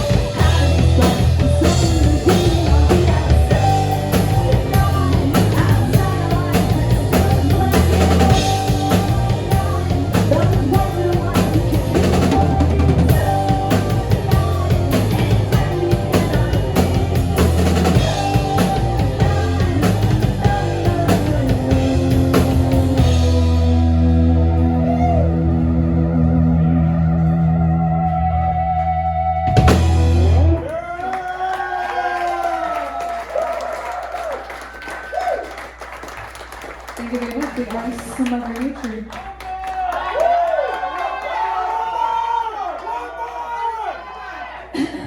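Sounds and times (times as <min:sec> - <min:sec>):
drum kit beating: 0:00.0 - 0:25.7, 0:28.0 - 0:30.9
person singing: 0:00.0 - 0:30.4
bass and guitar: 0:00.0 - 0:31.0.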